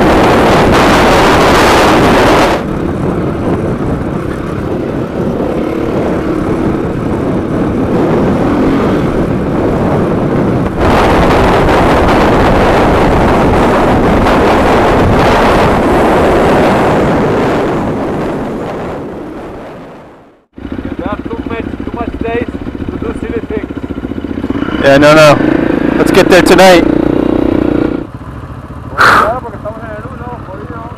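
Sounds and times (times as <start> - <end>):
wind rush on microphone: 0.0 - 20.5
motorcycle engine drone: 0.0 - 30.9.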